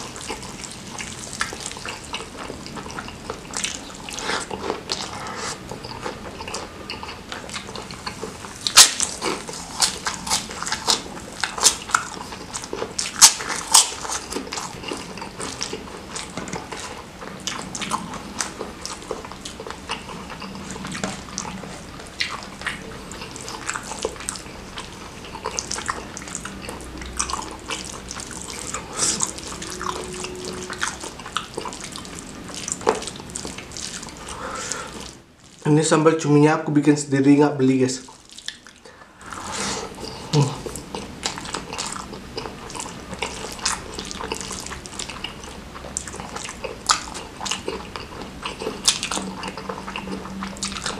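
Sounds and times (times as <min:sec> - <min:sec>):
wet chewing and lip smacking: 0:00.0 - 0:35.6, 0:38.1 - 0:50.9.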